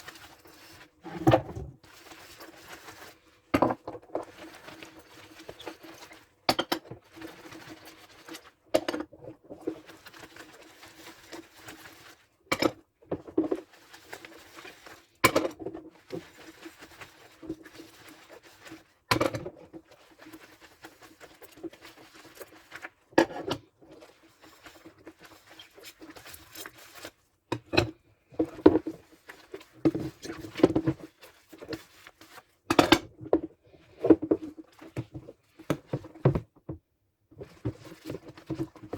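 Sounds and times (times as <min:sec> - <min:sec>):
dish scrubbing: 0:00.5 - 0:02.8.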